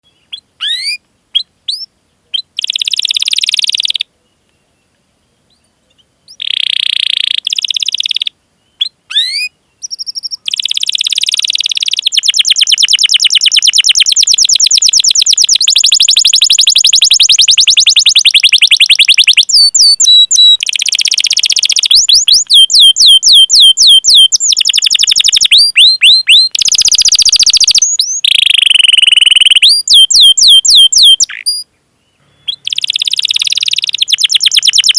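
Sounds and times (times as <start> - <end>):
canary singing: 0.1 - 4.1, 5.5 - 31.7, 32.3 - 34.9.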